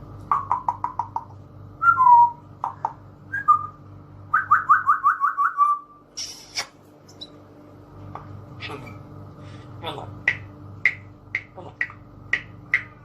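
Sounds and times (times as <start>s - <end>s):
steady low hum: 0.0s - 13.0s
parrot whistling: 3.3s - 6.6s.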